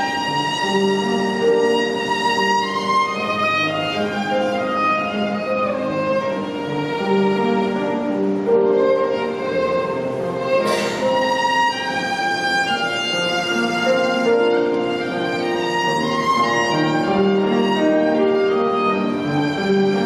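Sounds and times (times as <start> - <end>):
piano accompaniment: 0.0 - 20.0
violin melody: 0.0 - 20.0.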